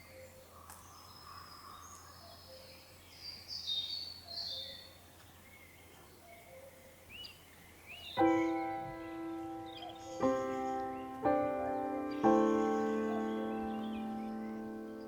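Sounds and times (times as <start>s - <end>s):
faint background hiss: 0.0s - 15.0s
songbirds chirping and singing: 0.0s - 15.0s.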